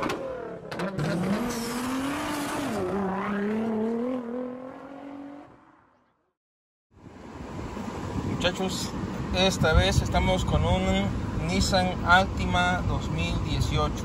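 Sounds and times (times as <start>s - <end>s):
race car engine: 0.0s - 6.0s.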